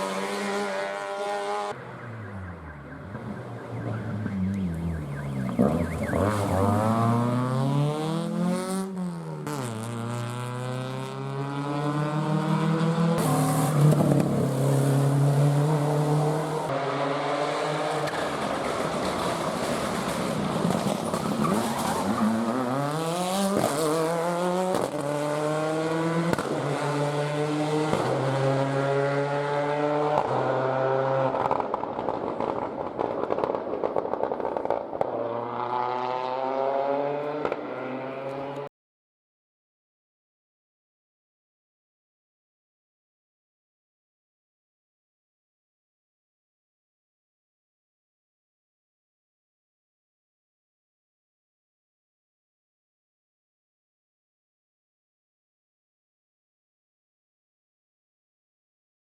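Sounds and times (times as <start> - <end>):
rally car engine revving: 0.0 - 1.7, 3.2 - 32.6, 35.0 - 38.7.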